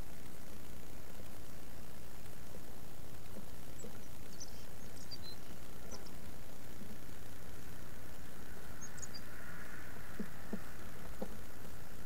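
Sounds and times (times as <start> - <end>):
low outdoor rumble: 0.0 - 12.0
faint high bird chirps: 3.7 - 6.2, 7.6 - 10.9
soft taps: 10.2 - 11.4.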